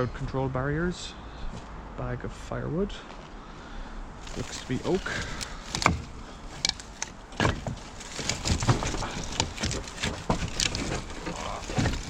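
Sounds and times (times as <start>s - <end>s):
firewood logs knocking: 4.2s - 12.0s.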